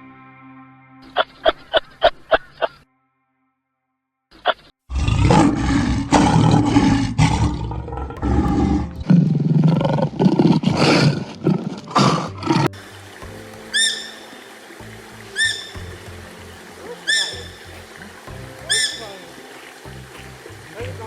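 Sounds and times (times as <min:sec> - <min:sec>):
big cat roaring: 0:04.9 - 0:12.7.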